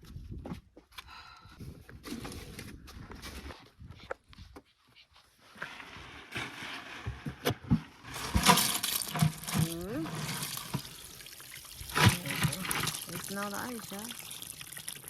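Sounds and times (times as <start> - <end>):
water running and splashing: 8.2 - 15.0.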